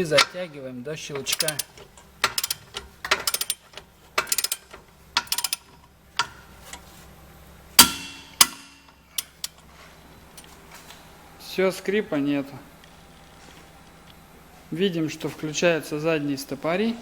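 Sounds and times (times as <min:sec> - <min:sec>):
sharp metallic clicks: 0:01.0 - 0:06.4, 0:07.8 - 0:09.6
torque wrench ratchet clicks: 0:01.2 - 0:05.8.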